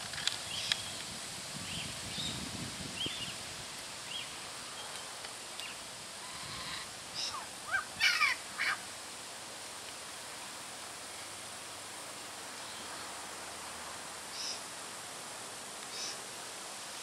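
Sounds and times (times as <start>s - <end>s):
birds chirping: 4.0s - 8.8s.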